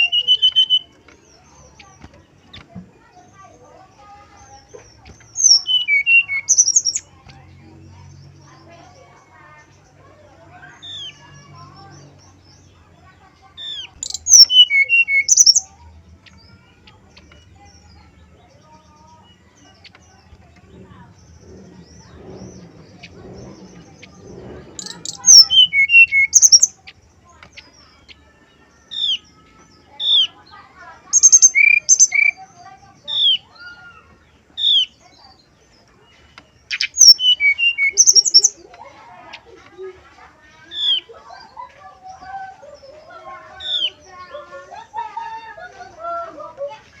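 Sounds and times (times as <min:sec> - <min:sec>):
bird singing whistled notes: 0:00.0 - 0:01.0, 0:05.4 - 0:07.1, 0:13.6 - 0:15.7, 0:24.8 - 0:26.8, 0:31.1 - 0:33.8, 0:36.7 - 0:38.6
harsh high bird notes: 0:00.0 - 0:02.0, 0:05.4 - 0:07.1, 0:13.6 - 0:20.2, 0:20.9 - 0:26.8, 0:27.5 - 0:35.1, 0:36.7 - 0:38.6.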